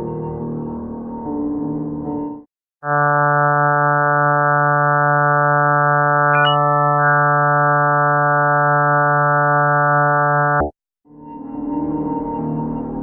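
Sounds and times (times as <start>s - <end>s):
electronic drone: 2.8s - 10.7s
short high blip: 6.3s - 6.7s.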